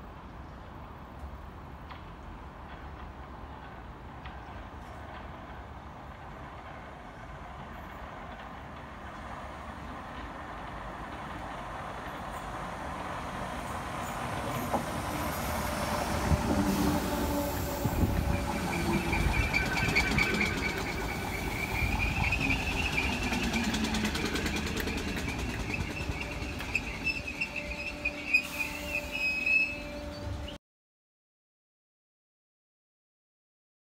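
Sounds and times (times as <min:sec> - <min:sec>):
train wheels rumbling: 0:00.6 - 0:30.6
high-pitched brake squeal: 0:14.0 - 0:30.6
sharp clacks: 0:23.2 - 0:26.8.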